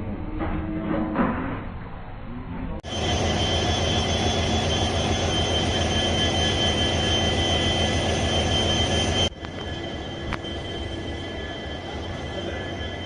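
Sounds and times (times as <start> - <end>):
high whine: 2.3 - 13.0
heavy engine humming: 2.8 - 13.0.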